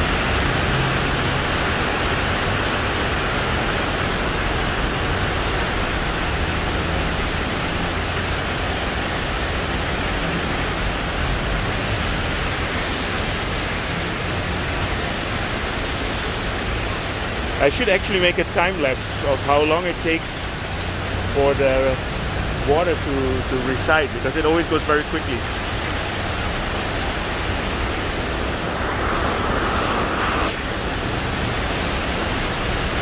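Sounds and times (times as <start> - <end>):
heavy rain falling: 0.0 - 33.0
low rumble: 25.8 - 32.0.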